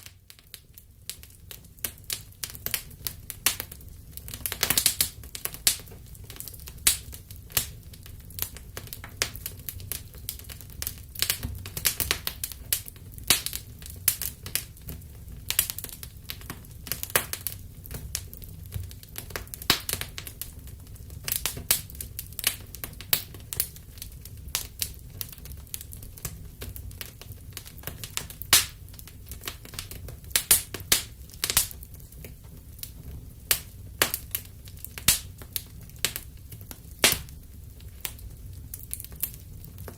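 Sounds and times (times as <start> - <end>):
low rumble of burning: 0.0 - 39.9
wood fire crackling: 0.0 - 39.9
sharp pops and snaps: 27.8 - 31.8, 33.5 - 36.2, 37.0 - 37.4.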